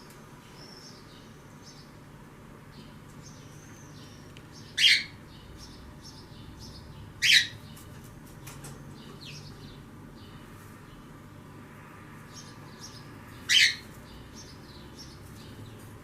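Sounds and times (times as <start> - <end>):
birds chirping softly: 0.0 - 16.0
loud short high bird calls: 3.4 - 5.2, 7.2 - 7.6, 13.4 - 14.5.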